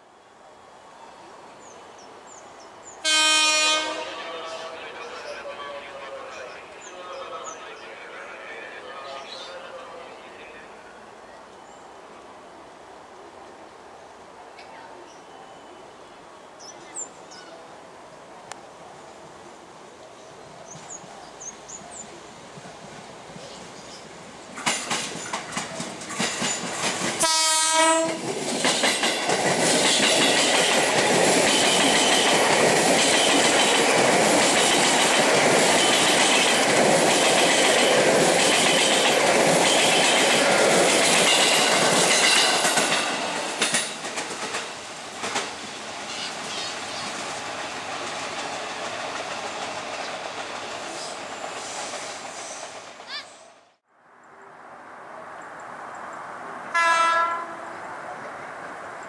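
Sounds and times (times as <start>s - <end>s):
train horn blast: 3.0s - 4.8s, 27.2s - 28.3s, 56.7s - 57.7s
train wheels on rails: 20.5s - 53.6s
clickety-clack over rail joints: 24.5s - 53.2s.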